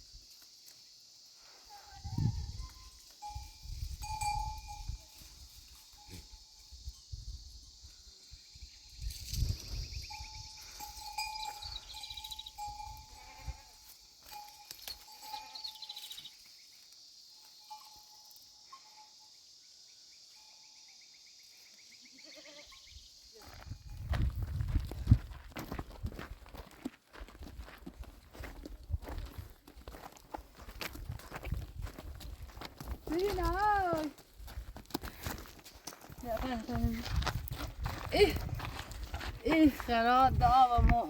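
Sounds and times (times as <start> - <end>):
sheep bleating: 22.1 - 22.8.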